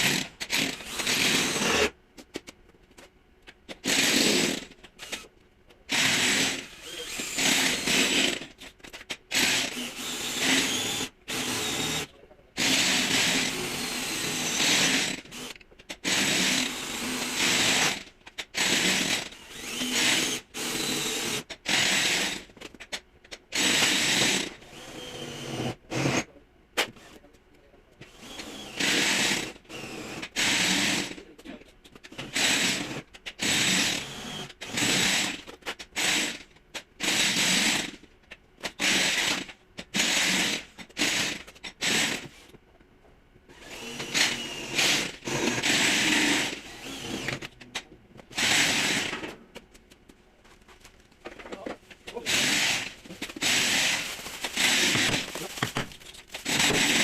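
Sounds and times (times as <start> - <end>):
power tool bursts: 52.2 - 57.0.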